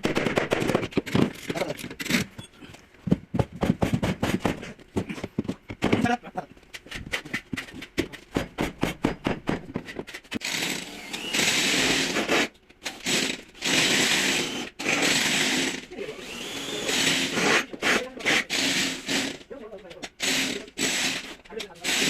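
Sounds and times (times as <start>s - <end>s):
power tool running: 10.4s - 19.4s, 20.2s - 22.0s.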